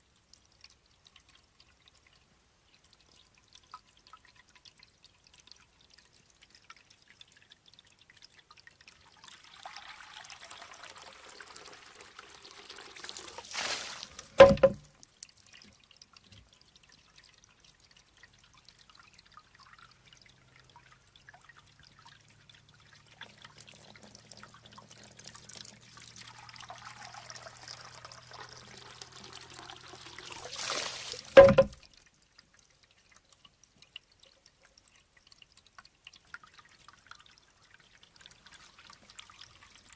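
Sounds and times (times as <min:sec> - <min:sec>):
water dripping: 0:00.0 - 0:39.9
water trickling and pouring: 0:00.0 - 0:39.9
bamboo tube clacking on stone: 0:14.3 - 0:14.9, 0:31.3 - 0:31.8.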